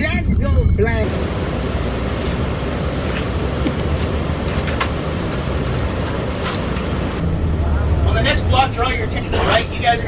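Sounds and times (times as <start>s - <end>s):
sharp clicks or rattles: 3.7s - 3.9s.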